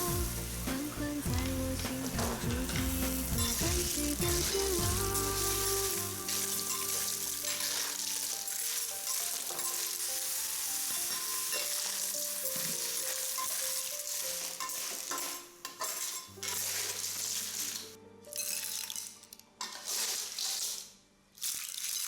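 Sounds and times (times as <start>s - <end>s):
stirring in a pan: 0.0s - 20.9s
clams sizzling in a hot pan: 0.0s - 22.0s.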